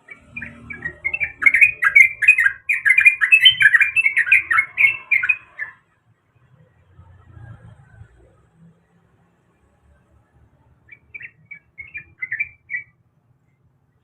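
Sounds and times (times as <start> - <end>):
bird singing fast short notes: 0.0 - 5.8.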